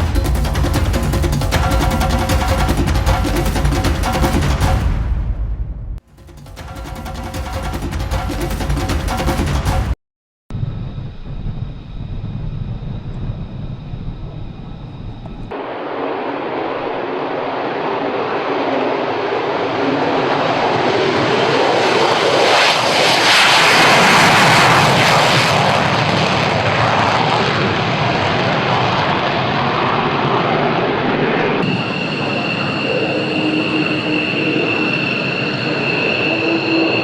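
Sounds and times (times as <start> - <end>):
fighter jet engine roar: 10.6 - 37.0.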